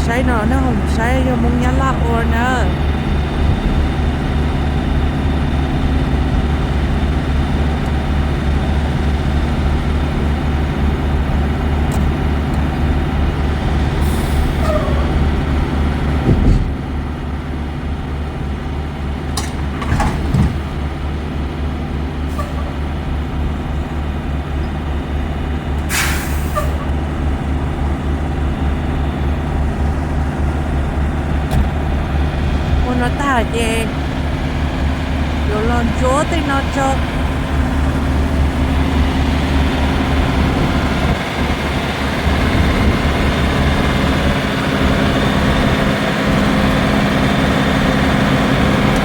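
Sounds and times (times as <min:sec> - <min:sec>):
truck engine droning: 0:00.0 - 0:49.0.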